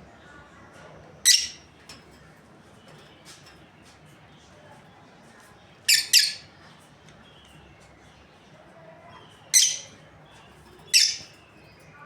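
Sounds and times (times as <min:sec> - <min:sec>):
lovebirds shrieking harshly: 0:01.3 - 0:01.6, 0:09.6 - 0:10.0, 0:10.9 - 0:11.3
faint bird chirping: 0:02.8 - 0:12.0.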